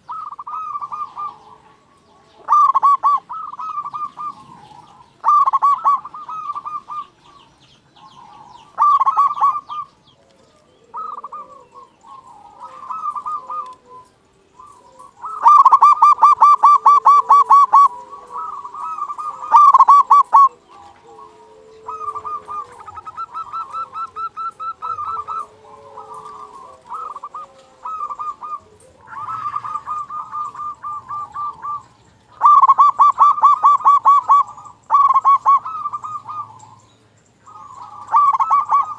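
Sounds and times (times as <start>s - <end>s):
dove cooing in fast bursts: 0.0s - 38.9s
fainter lower coos: 8.0s - 36.9s.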